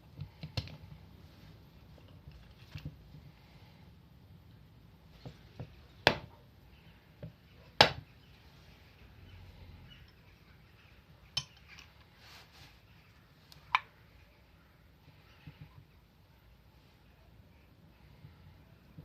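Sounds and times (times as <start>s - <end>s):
faint handling noise: 0.0s - 3.6s, 11.2s - 14.4s.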